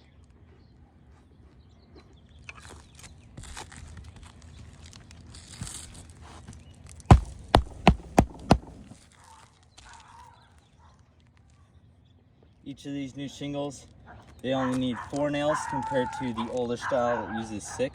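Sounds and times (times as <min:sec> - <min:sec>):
shingles rustling and scraping: 0:03.4 - 0:09.1
hammer driving nail into shingle: 0:07.1 - 0:09.0.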